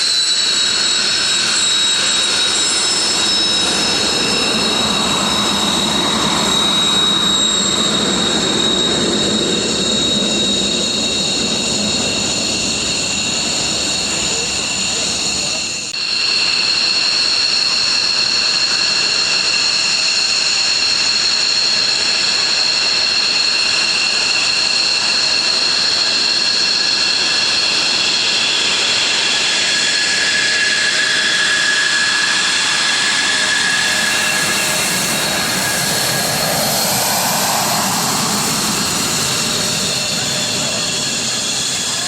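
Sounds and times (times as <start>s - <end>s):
jet engines whining: 0.0s - 42.0s
rising tone: 27.9s - 42.0s.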